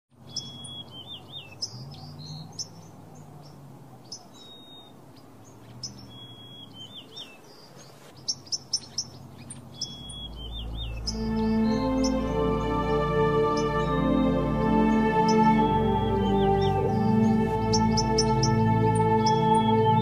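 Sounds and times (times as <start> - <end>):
birds chirping: 0.1 - 20.0
bird whistle with wavering notes: 0.3 - 2.8, 5.9 - 7.2, 9.8 - 20.0.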